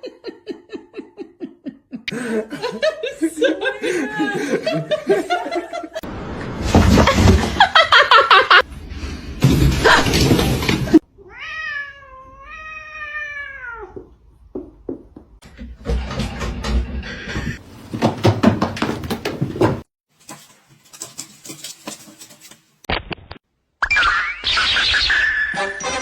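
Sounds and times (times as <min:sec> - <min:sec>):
knocks and scuffling clatter: 0:06.5 - 0:08.0, 0:14.6 - 0:22.9
cat meowing: 0:11.2 - 0:14.1.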